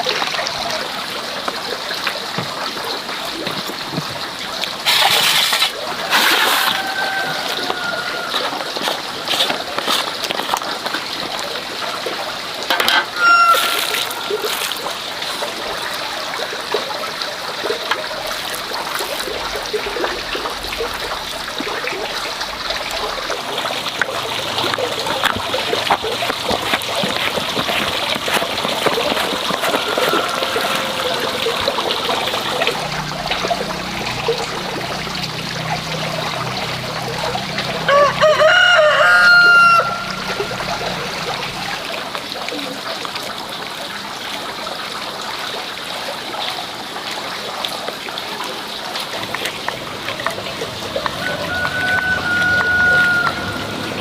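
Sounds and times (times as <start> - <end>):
water running and trickling: 0.0 - 54.0
rooster crowing: 6.1 - 9.0, 12.8 - 14.9, 29.3 - 32.6, 37.8 - 40.7, 51.2 - 54.0.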